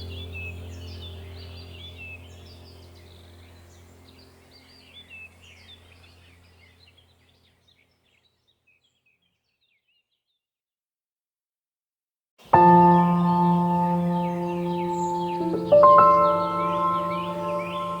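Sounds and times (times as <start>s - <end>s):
low steady drone: 0.0s - 6.4s, 12.6s - 18.0s
birds chirping and singing: 0.0s - 10.4s, 12.6s - 18.0s.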